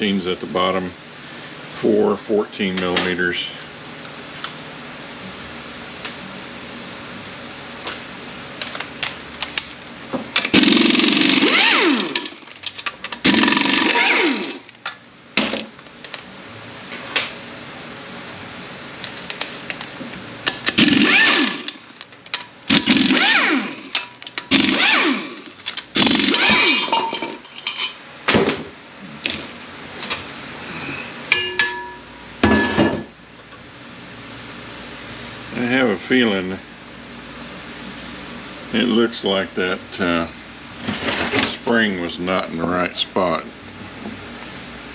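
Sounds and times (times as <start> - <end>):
power wrench spinning bolts: 10.4 - 14.7, 20.6 - 28.0.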